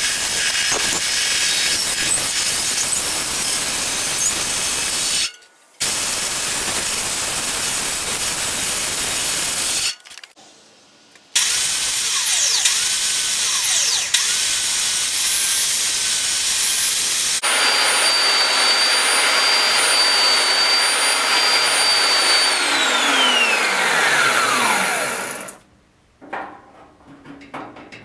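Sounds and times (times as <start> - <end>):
electric fan motor whining: 17.4 - 25.6.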